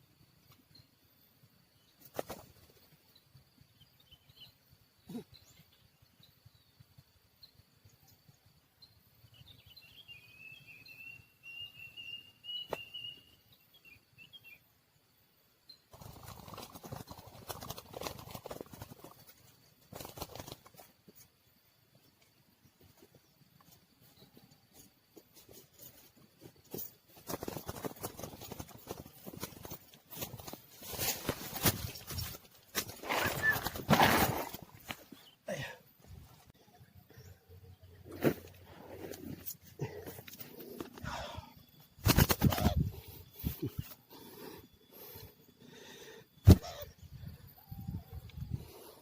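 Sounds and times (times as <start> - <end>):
small bird chirping: 0.0 - 35.5, 36.1 - 49.0
crackling rustling noise: 15.9 - 21.3, 24.8 - 35.2.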